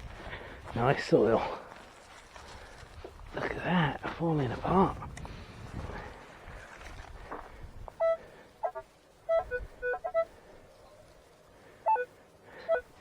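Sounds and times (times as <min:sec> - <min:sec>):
metal detector beeping: 0:08.0 - 0:10.3, 0:11.9 - 0:12.1.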